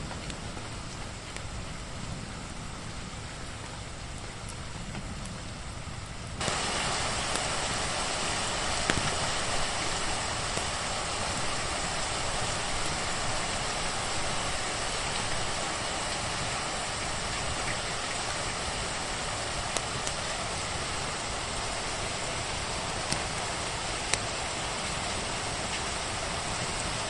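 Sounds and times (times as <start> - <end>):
steady rain: 0.0 - 27.0
sharp crackle: 6.4 - 26.6.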